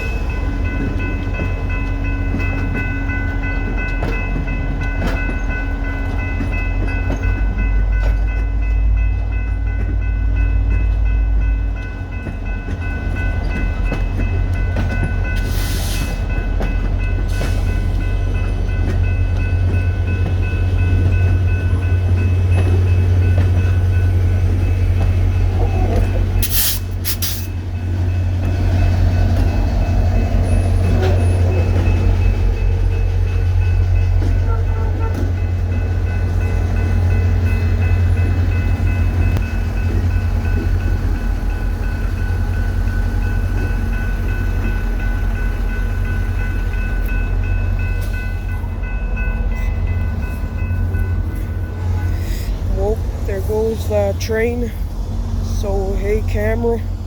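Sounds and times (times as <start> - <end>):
diesel locomotive rumble: 0.0 - 57.0.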